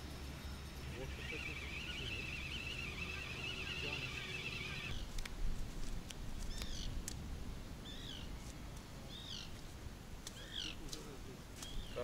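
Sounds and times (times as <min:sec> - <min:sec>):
bird calling: 0:00.5 - 0:05.0, 0:10.3 - 0:10.9.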